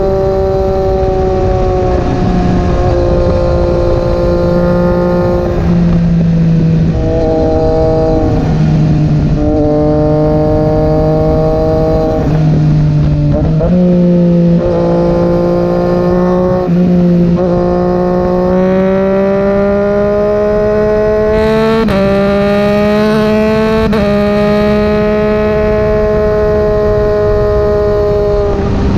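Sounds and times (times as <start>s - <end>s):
motorcycle engine at high revs: 0.0s - 28.9s.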